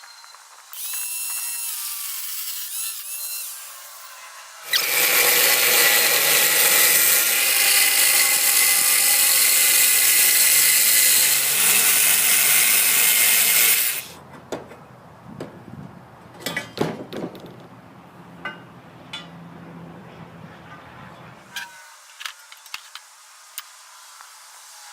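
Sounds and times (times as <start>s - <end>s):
angle grinder cutting metal tubing: 0.7s - 14.2s, 21.5s - 22.9s.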